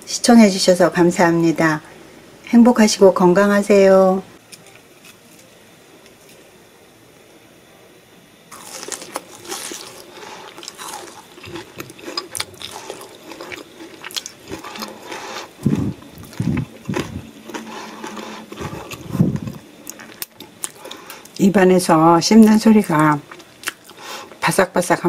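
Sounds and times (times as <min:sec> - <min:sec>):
crunching fried food: 0:08.5 - 0:21.5, 0:22.3 - 0:24.5
low chewing thumps: 0:10.2 - 0:20.2.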